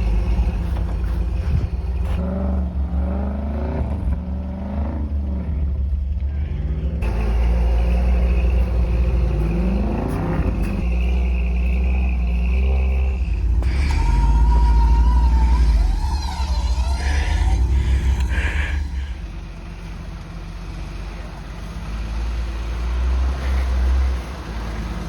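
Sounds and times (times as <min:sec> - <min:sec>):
truck engine revving: 0:00.0 - 0:25.0.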